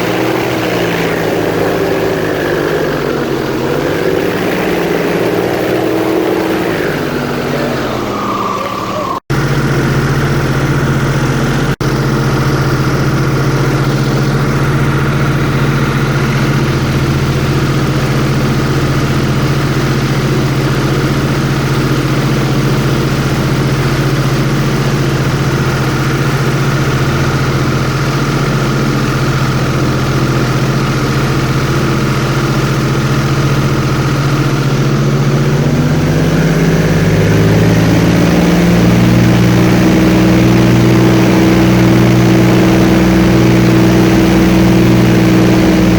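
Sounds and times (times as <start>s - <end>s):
airboat engine and propeller: 0.0s - 45.9s.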